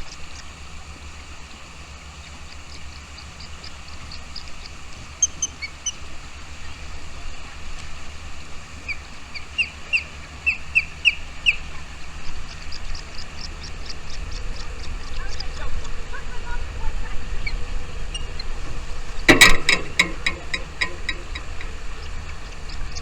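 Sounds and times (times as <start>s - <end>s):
small birds chirping: 8.8s - 23.0s.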